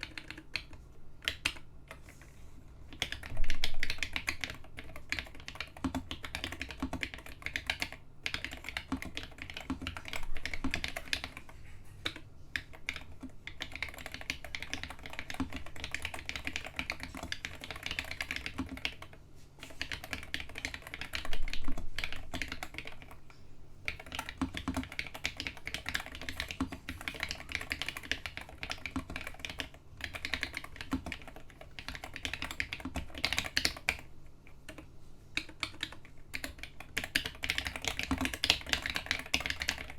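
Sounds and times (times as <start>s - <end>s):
mechanical keyboard typing clicks: 0.0s - 2.1s, 2.9s - 23.2s, 23.9s - 39.9s.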